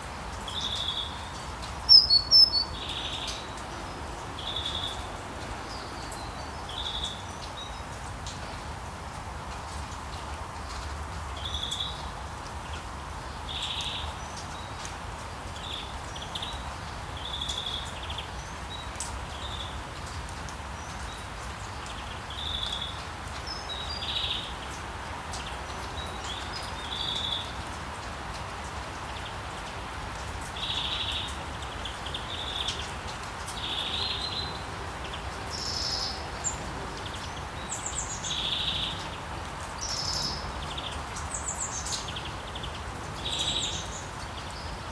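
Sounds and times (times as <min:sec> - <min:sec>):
birds chirping: 0:00.6 - 0:03.4.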